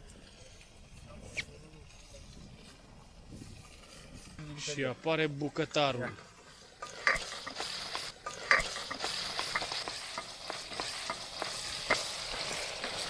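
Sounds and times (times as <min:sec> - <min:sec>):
meat sizzling in a pot: 0:06.2 - 0:13.0.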